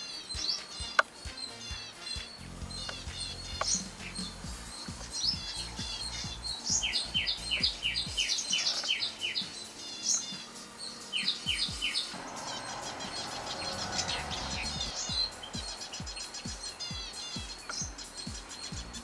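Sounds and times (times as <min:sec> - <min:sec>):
small birds twittering: 0:00.0 - 0:19.0.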